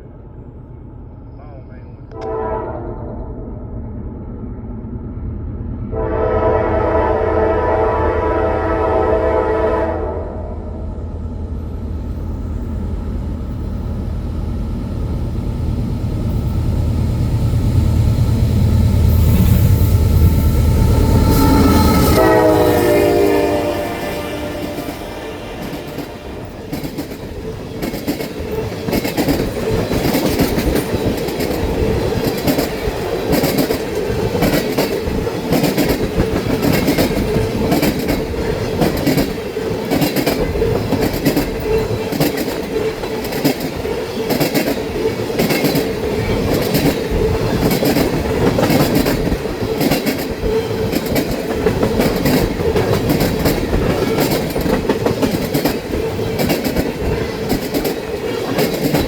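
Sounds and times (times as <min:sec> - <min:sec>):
train rolling rumble: 0:00.0 - 0:59.0
train wheels clicking over rail joints: 0:24.5 - 0:59.0.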